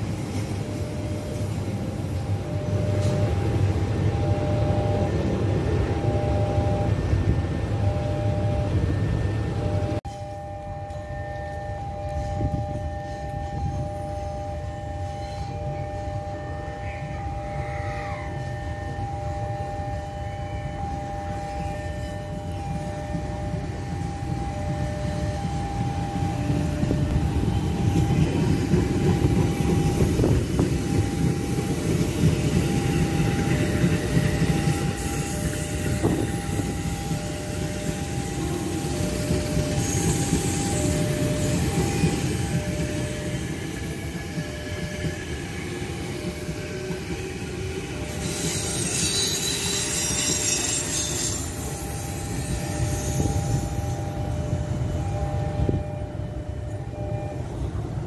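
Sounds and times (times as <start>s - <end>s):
train wheels rumbling on rails: 0.0s - 58.0s
two-tone level-crossing alarm: 0.0s - 58.0s
high wheel squeal: 32.6s - 54.2s.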